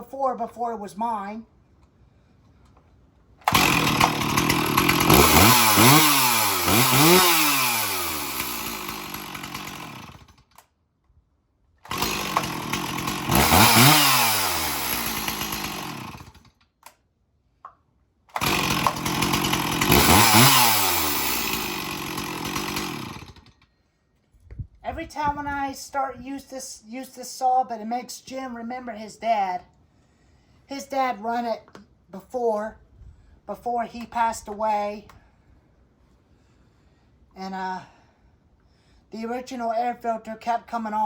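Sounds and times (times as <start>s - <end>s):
chainsaw revving: 3.4s - 10.6s, 11.8s - 16.5s, 18.3s - 23.5s.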